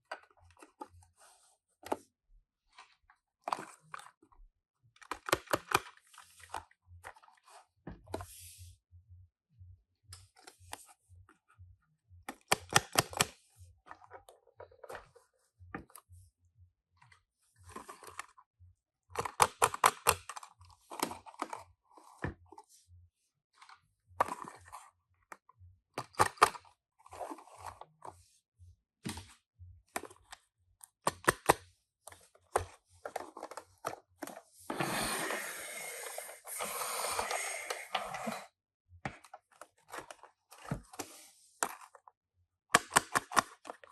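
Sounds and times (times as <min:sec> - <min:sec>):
plastic and metal clicks: 0:12.3 - 0:13.4, 0:42.7 - 0:43.9.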